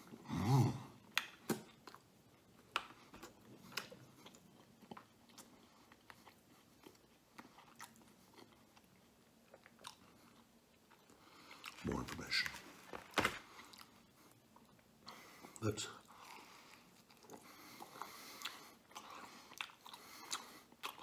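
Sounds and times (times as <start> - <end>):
man chewing food: 0.0 - 21.0.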